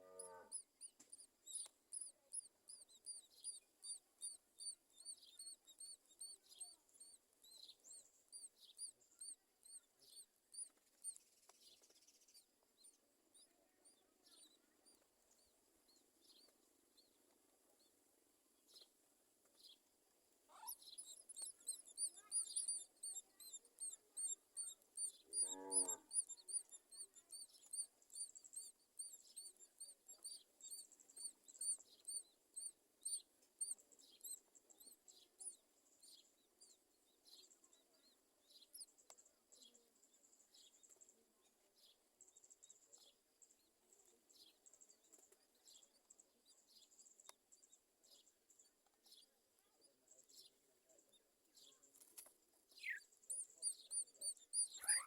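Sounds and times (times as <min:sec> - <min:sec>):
nestlings cheeping: 0:20.5 - 0:33.2, 0:52.8 - 0:55.0.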